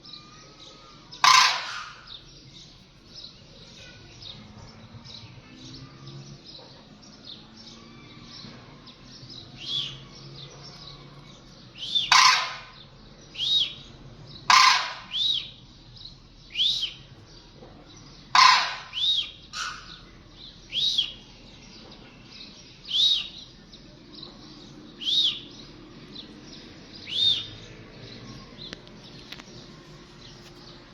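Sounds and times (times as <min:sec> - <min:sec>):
birds twittering: 0:00.0 - 0:30.9
harsh bird calls: 0:00.0 - 0:30.9.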